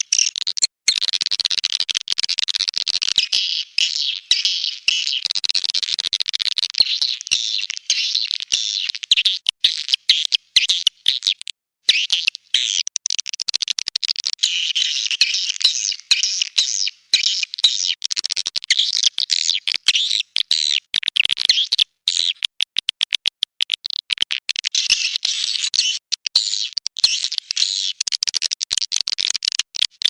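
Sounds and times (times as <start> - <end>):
high-pitched bird twittering chirps: 14.4 - 17.9.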